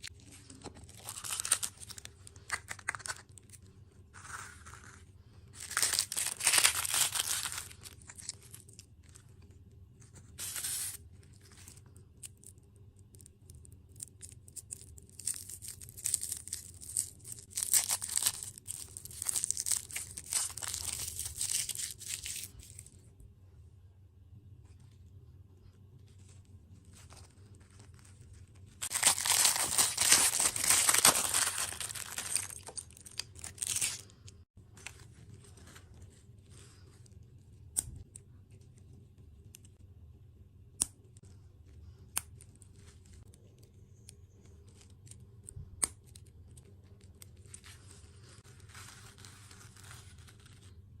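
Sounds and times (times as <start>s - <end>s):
plastic packaging crinkling: 0.0s - 5.0s, 5.6s - 9.2s, 14.0s - 22.9s, 26.9s - 34.2s.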